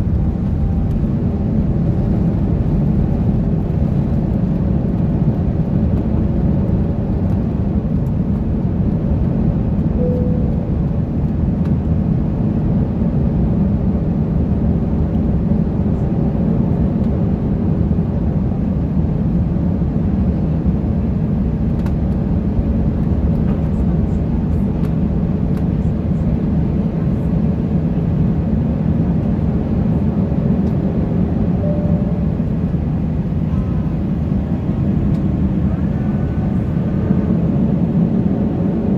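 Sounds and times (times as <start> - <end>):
air rushing along fuselage: 0.0 - 5.4, 22.6 - 38.9
aircraft engines: 0.0 - 38.9.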